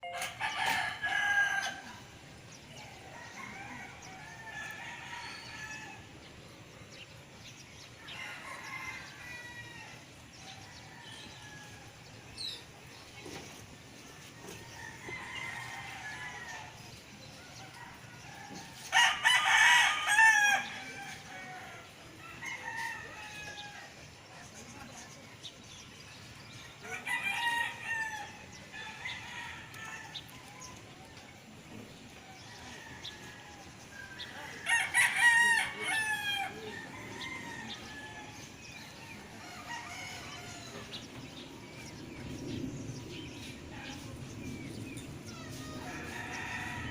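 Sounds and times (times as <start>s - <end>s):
distant roosters crowing: 0.0s - 24.3s, 25.7s - 46.9s
rooster crowing loudly: 0.1s - 2.0s, 18.9s - 21.6s, 26.8s - 30.1s, 34.6s - 38.4s, 45.5s - 46.9s.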